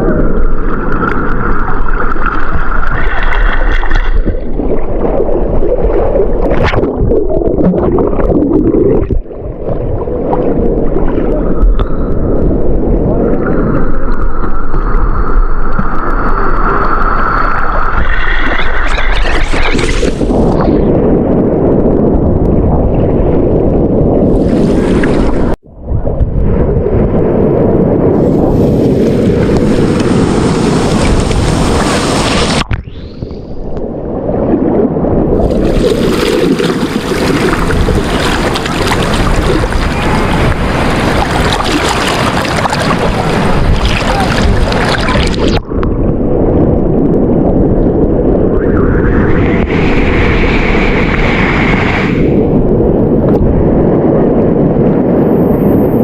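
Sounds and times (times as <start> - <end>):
sea surf: 0.0 - 20.9, 24.3 - 25.6, 28.0 - 46.7, 48.5 - 53.3
wind blowing on microphone: 0.0 - 56.0.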